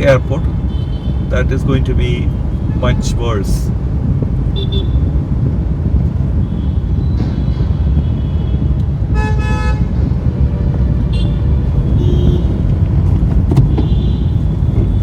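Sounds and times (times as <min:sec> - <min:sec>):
road traffic rumble: 0:00.0 - 0:15.0
vehicle horn honking: 0:04.6 - 0:05.1, 0:08.0 - 0:09.9, 0:11.1 - 0:12.7, 0:13.7 - 0:15.0.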